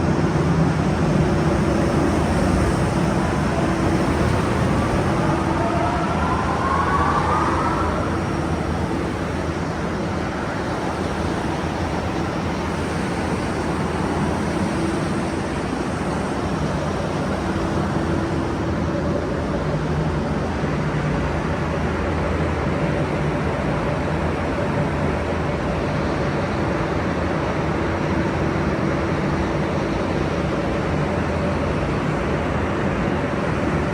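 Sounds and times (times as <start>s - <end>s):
machine whine: 0.0s - 20.2s.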